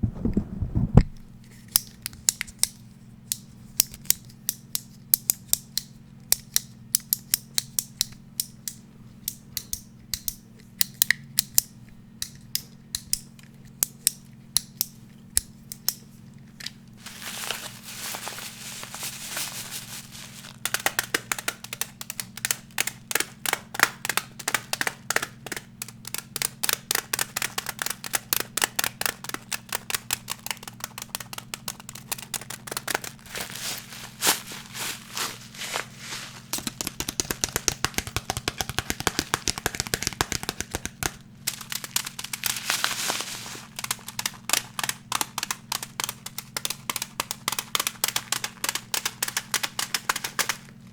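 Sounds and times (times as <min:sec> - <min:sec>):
scratching or brushing: 0:17.0 - 0:20.6, 0:31.4 - 0:36.8, 0:42.4 - 0:44.5
tapping on hard object: 0:36.6 - 0:41.2.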